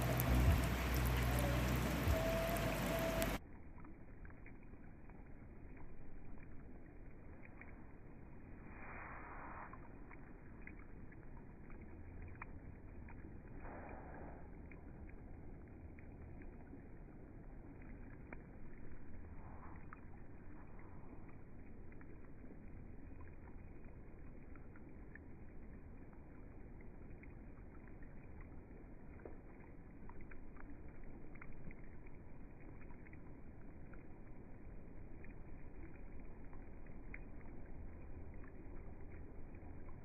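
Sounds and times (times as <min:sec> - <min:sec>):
rain falling: 0:00.0 - 0:03.4.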